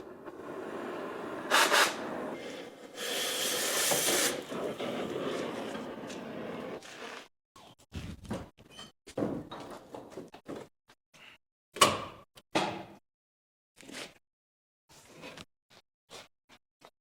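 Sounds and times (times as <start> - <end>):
pressurised gas hissing: 0.0 - 5.9.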